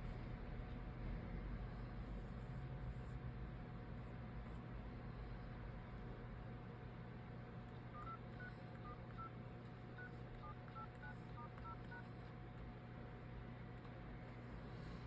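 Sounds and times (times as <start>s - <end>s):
low steady hum: 0.0s - 15.0s
phone keypad beeps: 7.9s - 8.2s, 10.0s - 12.0s.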